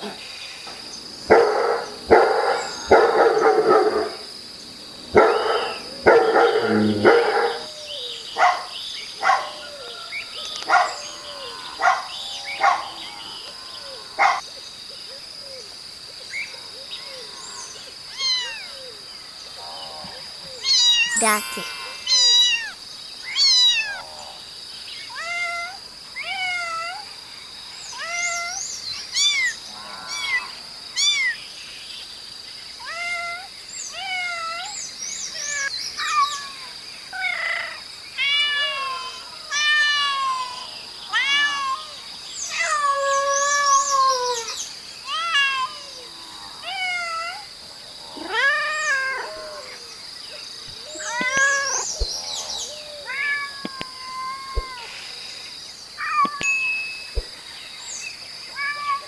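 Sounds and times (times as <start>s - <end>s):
steady high-pitched hiss: 0.0s - 59.0s
cat meowing: 53.0s - 54.9s.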